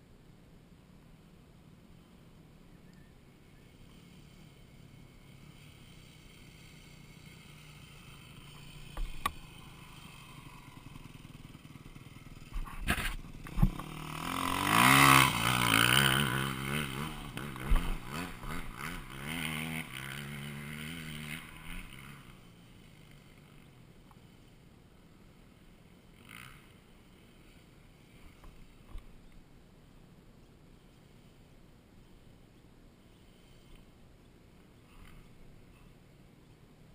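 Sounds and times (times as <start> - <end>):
dirt bike engine revving: 3.7 - 24.6, 25.4 - 28.8.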